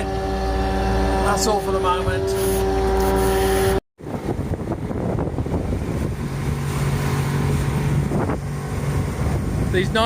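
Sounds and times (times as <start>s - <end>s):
motorboat engine running: 0.0s - 10.0s
wind noise on microphone: 2.3s - 10.0s.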